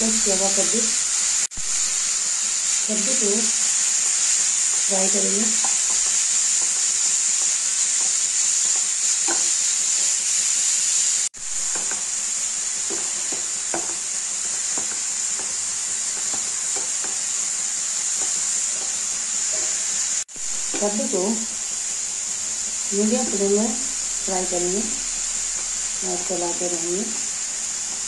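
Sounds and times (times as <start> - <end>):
pumpkin sizzling in a pan: 0.0 - 28.0
spatula scraping a pan: 3.4 - 10.4, 11.6 - 20.2.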